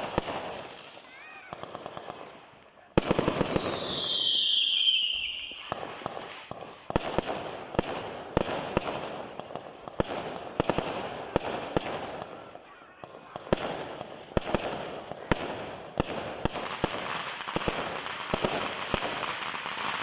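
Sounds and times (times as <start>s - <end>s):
firework bangs: 0.0s - 20.0s
firework whistle: 3.4s - 5.8s.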